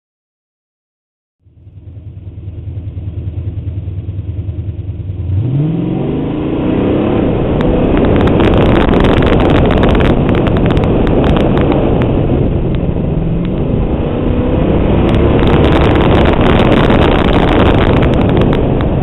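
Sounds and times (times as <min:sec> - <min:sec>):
car engine idling: 0:01.4 - 0:05.6
engine revving under acceleration: 0:02.3 - 0:19.0
tyre and wind noise: 0:06.8 - 0:19.0.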